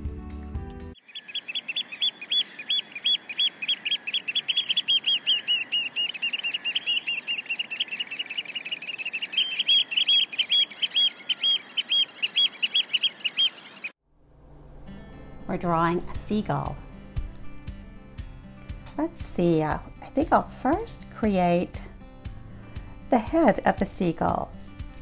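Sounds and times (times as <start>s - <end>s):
birds calling high-pitched: 1.0s - 13.9s.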